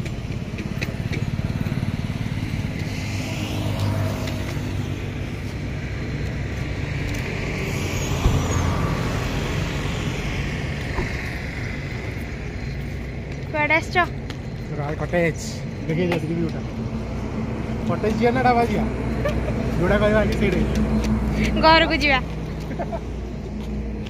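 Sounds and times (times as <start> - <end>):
car engine rumbling: 0.0 - 24.0
sharp thump: 8.2 - 8.9.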